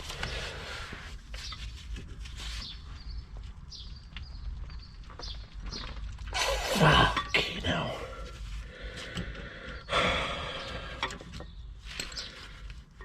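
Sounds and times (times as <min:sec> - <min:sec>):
man breathing hard and straining: 0:06.3 - 0:11.3.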